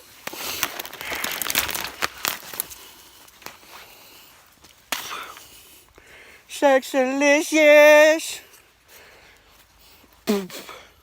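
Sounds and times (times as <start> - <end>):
dry sticks snapping and crackling: 0.0 - 3.9.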